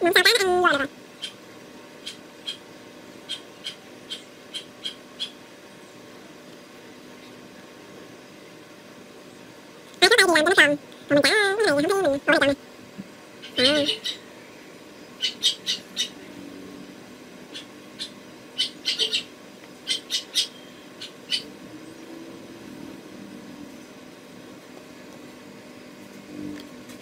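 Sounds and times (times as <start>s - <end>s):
small bird chirping: 1.2s - 1.4s, 2.0s - 2.6s, 3.2s - 5.4s, 13.4s - 14.3s, 15.0s - 16.3s, 17.5s - 22.1s.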